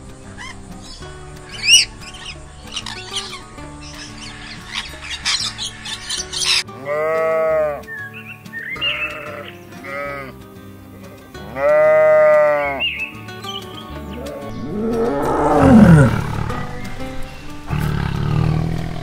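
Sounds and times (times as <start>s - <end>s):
background music: 0.0s - 19.0s
parrots squawking: 1.5s - 6.6s
sheep bleating: 6.7s - 7.9s, 8.8s - 10.4s, 11.4s - 12.9s, 14.2s - 16.9s
tiger roaring: 14.2s - 19.0s.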